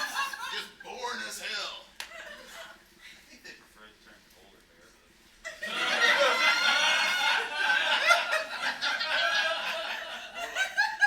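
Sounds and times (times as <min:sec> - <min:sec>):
audience laughing: 0:00.0 - 0:00.8, 0:05.5 - 0:11.0.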